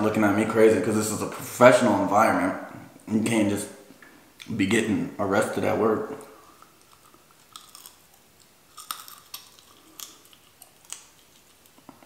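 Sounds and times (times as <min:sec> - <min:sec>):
close chewing mouth sounds: 0:06.3 - 0:12.0.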